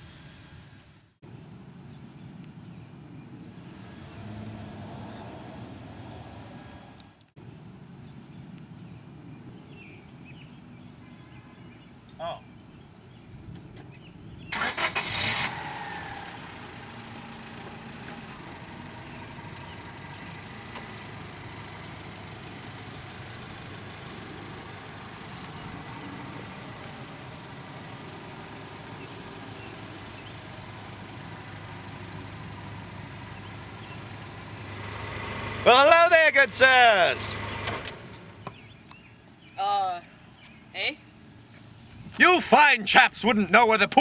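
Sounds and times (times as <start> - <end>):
car engine starting and running: 13.6 - 38.8.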